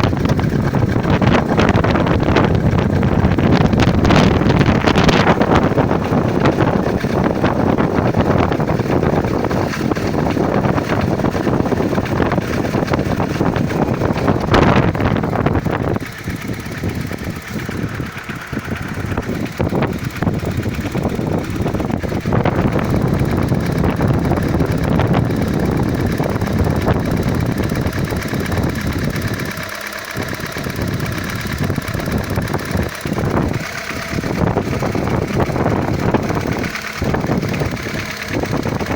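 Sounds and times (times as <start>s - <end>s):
petrol engine running: 0.0s - 38.9s
rapid knocking from cylinder head: 0.0s - 38.9s.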